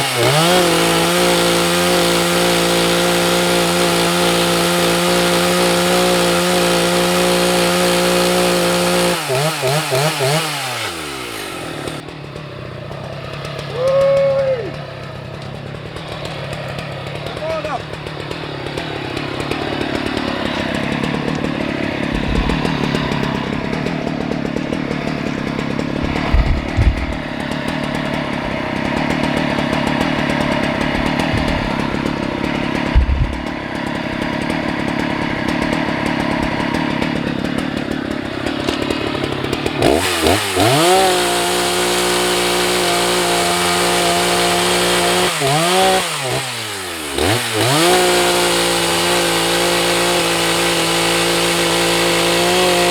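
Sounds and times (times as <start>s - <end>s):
chainsaw cutting wood: 0.0s - 52.9s
dull thuds: 20.3s - 34.4s.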